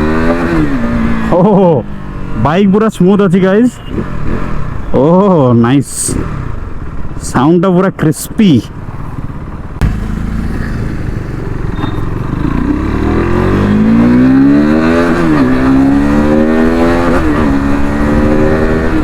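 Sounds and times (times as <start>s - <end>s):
motorcycle engine accelerating: 0.0s - 1.6s, 8.8s - 19.0s.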